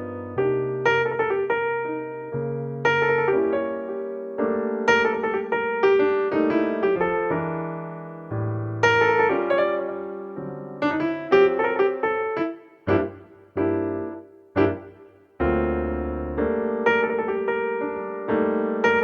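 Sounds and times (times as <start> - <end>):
piano chords and melody: 0.0 - 19.0.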